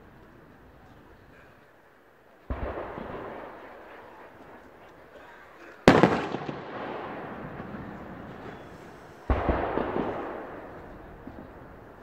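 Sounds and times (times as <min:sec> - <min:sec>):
firework cracks: 0:05.8 - 0:12.0
echoing rumble: 0:05.9 - 0:12.0.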